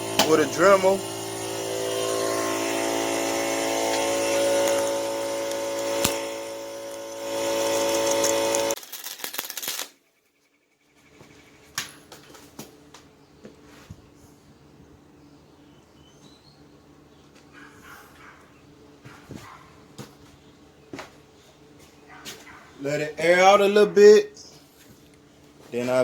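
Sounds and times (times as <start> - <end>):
rotary tool grinding metal: 0.0 - 8.8.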